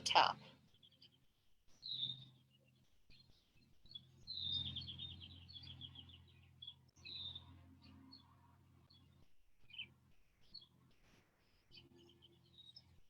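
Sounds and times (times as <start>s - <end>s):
bird chirps: 0.0s - 8.3s, 8.9s - 10.7s
songbird singing: 1.8s - 10.7s.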